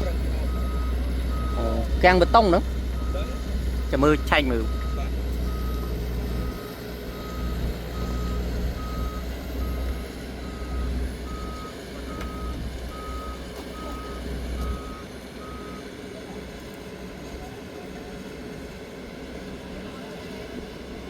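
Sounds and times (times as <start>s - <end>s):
reversing alarm beeps: 0.0s - 15.9s
diesel engine rumble: 0.0s - 21.0s.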